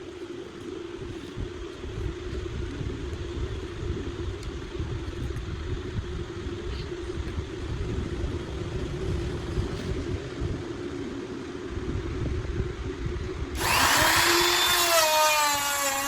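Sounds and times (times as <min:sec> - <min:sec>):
electric router running: 0:13.6 - 0:16.0.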